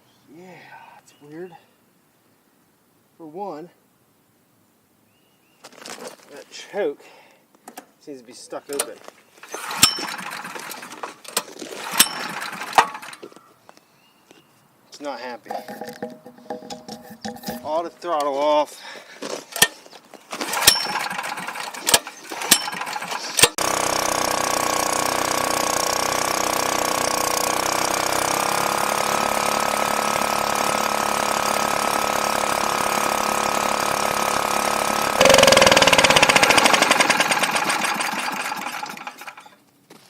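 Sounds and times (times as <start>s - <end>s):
generator engine running: 9.4s - 13.4s, 20.4s - 39.6s.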